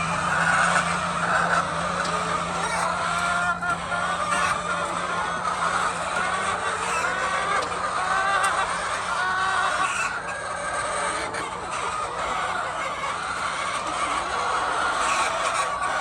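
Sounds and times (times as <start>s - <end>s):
low steady hum: 0.0s - 8.0s
hens clucking: 0.0s - 16.0s.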